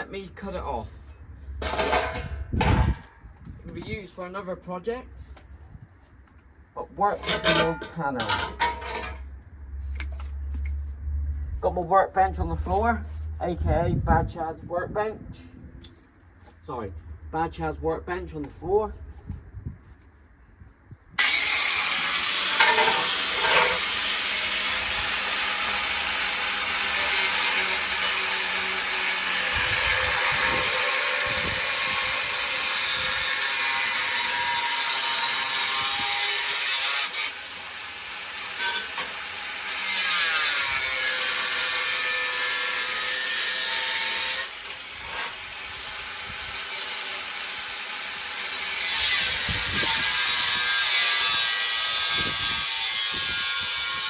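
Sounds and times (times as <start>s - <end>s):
power tool cutting sheet steel: 21.2s - 54.0s.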